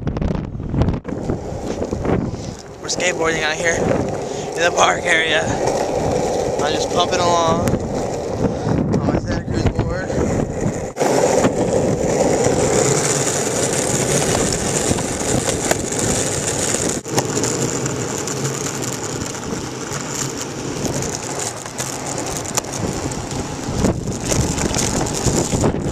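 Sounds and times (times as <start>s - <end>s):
skateboard wheels rolling on pavement: 0.0s - 25.9s
skateboard clicks: 1.1s - 9.0s, 10.2s - 25.9s.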